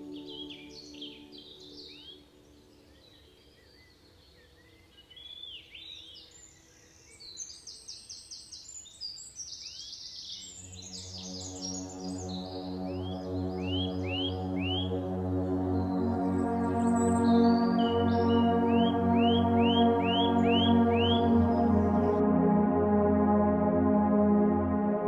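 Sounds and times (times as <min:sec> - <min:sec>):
soft ambient music: 0:00.0 - 0:05.5, 0:10.2 - 0:25.0
birds chirping: 0:10.2 - 0:22.3.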